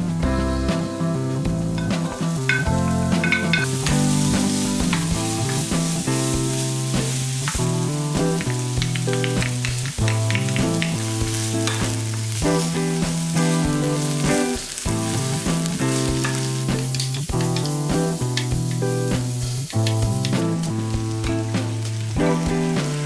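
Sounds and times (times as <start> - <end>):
guitar music: 0.0 - 23.0
eggplant sizzling in oil: 1.7 - 23.0
wooden spoon knocking against pan: 1.8 - 4.0, 8.4 - 12.2.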